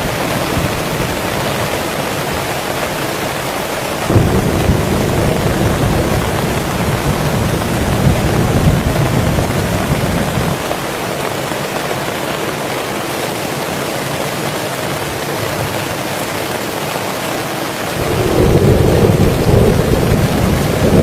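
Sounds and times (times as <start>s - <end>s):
heavy rain: 0.0s - 21.0s
thunder rumble: 4.1s - 10.6s, 18.0s - 21.0s.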